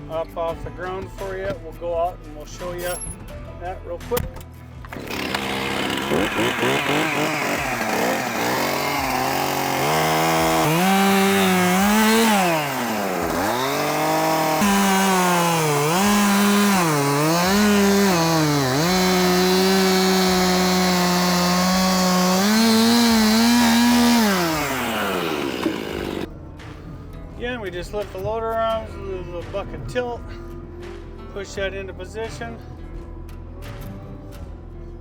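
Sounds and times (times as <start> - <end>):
diesel engine running at high revs: 4.9 - 26.3.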